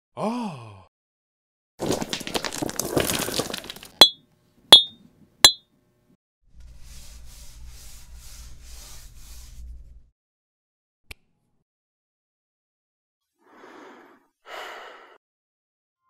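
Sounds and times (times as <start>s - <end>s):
small hard pieces clattering: 1.8s - 4.2s
soft rhythmic scrapes: 6.7s - 10.0s.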